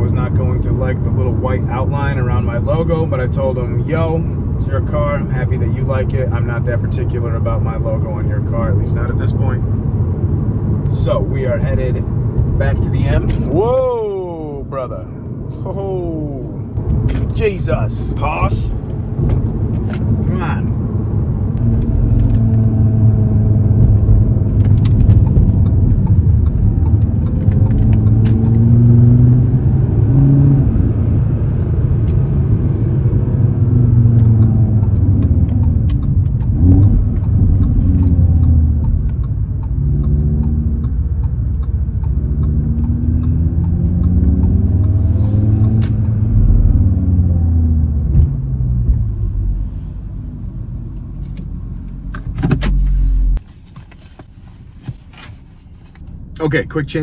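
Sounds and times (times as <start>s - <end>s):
car engine accelerating through gears: 16.4s - 53.4s.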